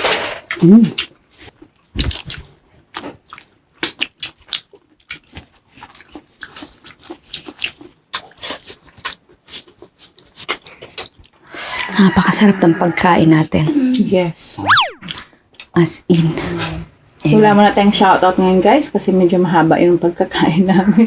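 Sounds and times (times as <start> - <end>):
people chewing and smacking: 0.4 - 12.0.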